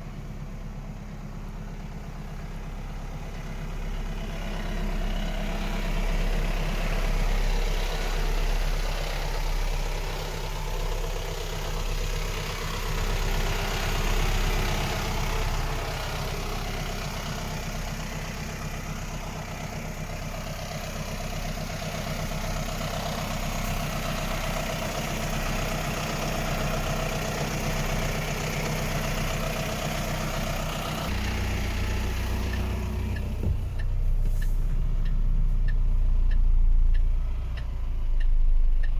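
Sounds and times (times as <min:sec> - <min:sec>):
diesel truck engine idling: 0:00.0 - 0:38.9.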